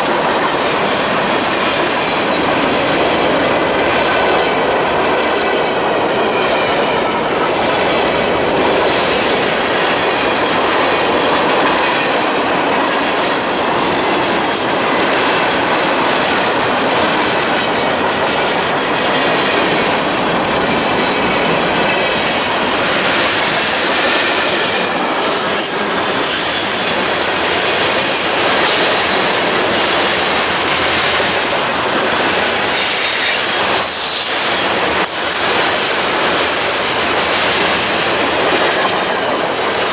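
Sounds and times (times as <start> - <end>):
train rumbling and rattling past: 0.0 - 39.9
train wheel squeal: 18.1 - 39.9.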